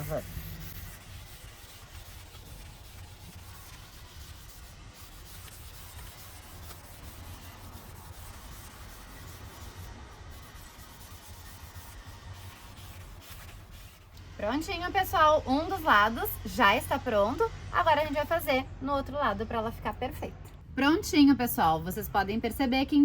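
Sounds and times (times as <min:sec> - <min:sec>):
scouring pad rubbing on steel: 0:00.0 - 0:14.1.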